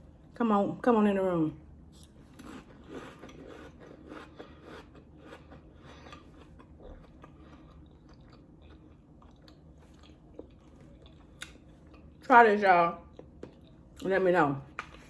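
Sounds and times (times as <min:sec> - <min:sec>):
person chewing crackers: 0:02.0 - 0:12.2, 0:13.1 - 0:14.1.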